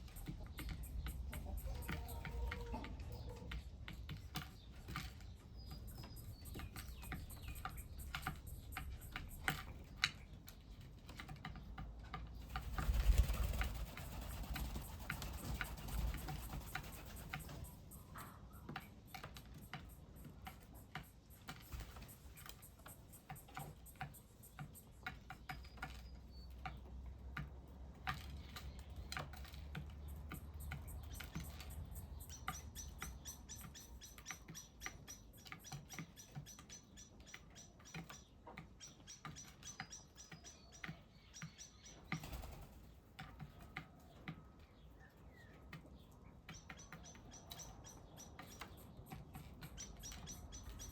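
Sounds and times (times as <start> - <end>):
birds pecking at seed: 0.0 - 50.9
high rapid bird chirp: 4.5 - 10.3, 12.4 - 26.6, 28.6 - 42.7, 46.5 - 50.9.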